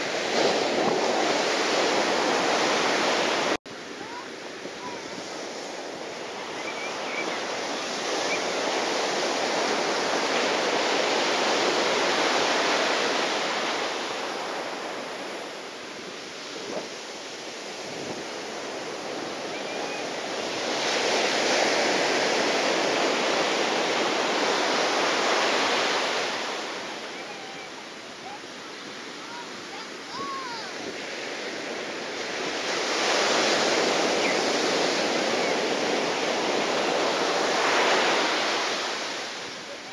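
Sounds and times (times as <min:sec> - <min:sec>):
sea water: 0:00.0 - 0:39.9.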